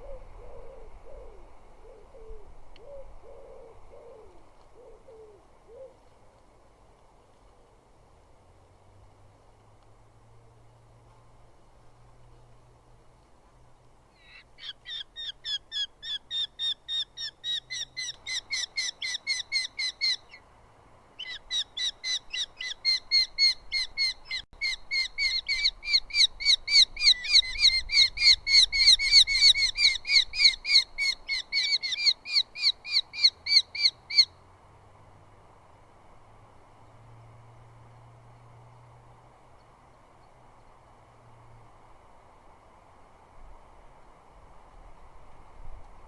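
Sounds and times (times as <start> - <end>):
falcon calling with sharp notes: 14.2 - 20.4, 21.2 - 34.3.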